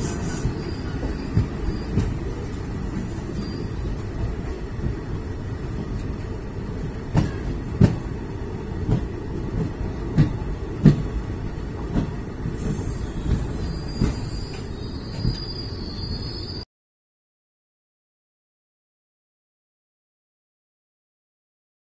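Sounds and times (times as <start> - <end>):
high squeal from train wheels: 0.0 - 4.5, 12.5 - 16.7
train rolling rumble: 0.0 - 16.6.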